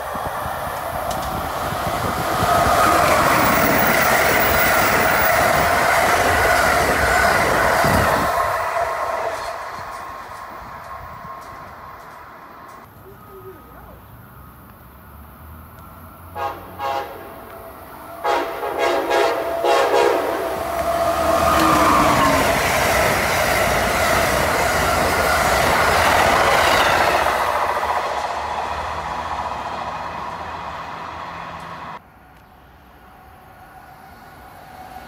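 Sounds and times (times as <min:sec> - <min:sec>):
train passing at speed: 0:00.0 - 0:35.0
train horn blasts: 0:16.4 - 0:17.5, 0:18.1 - 0:22.0.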